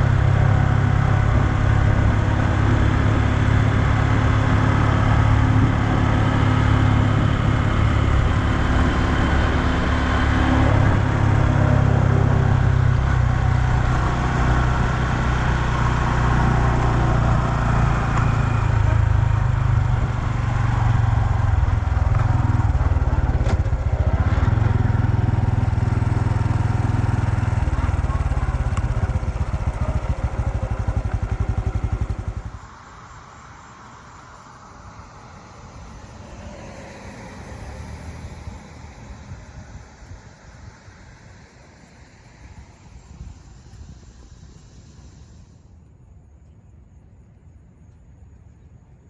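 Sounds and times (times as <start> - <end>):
motorcycle engine running: 0.0 - 32.7
wind noise: 0.0 - 49.0.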